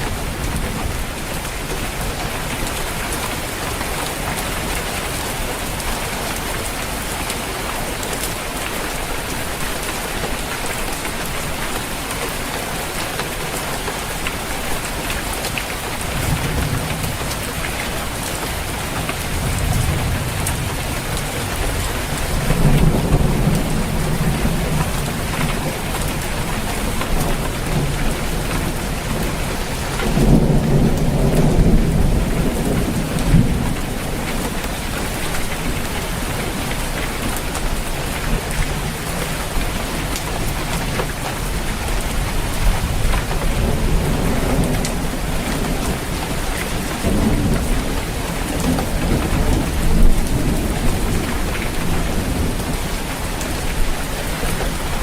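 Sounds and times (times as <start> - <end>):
rain falling on a roof: 0.0 - 55.0
thunder rumbling: 15.9 - 36.4.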